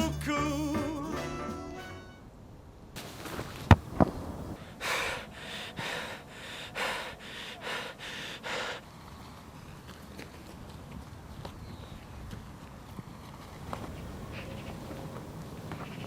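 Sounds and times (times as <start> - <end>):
loud breathy puffs: 4.6 - 9.0.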